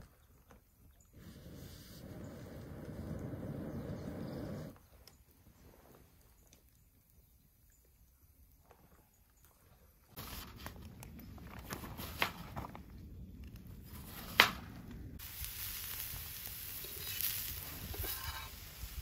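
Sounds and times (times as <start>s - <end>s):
onion sizzling on griddle: 15.2s - 19.0s.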